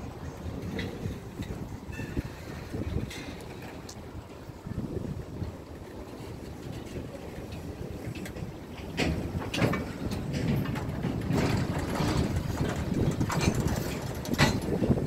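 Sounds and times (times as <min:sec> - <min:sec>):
freight train rumbling past: 0:00.0 - 0:15.0
wind buffeting microphone: 0:00.0 - 0:15.0
sharp clanks: 0:08.9 - 0:14.9.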